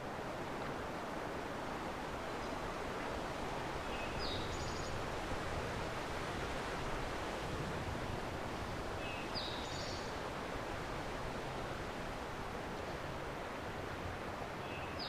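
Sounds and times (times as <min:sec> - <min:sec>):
wind through trees: 0:00.0 - 0:15.0
songbird singing: 0:03.8 - 0:05.0, 0:09.0 - 0:10.1, 0:14.6 - 0:15.0.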